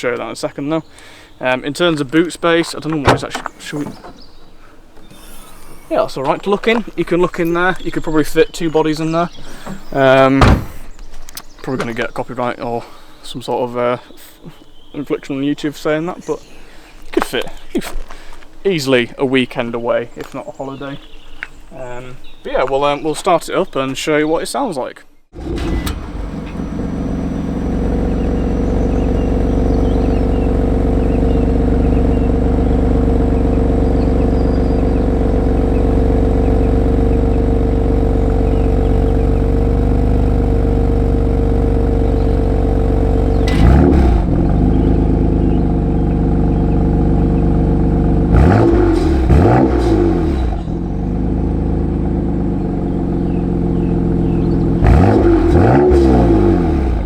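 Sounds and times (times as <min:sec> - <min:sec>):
car engine idling: 0:00.0 - 0:13.9, 0:25.3 - 0:57.0
engine revving: 0:25.3 - 0:57.0.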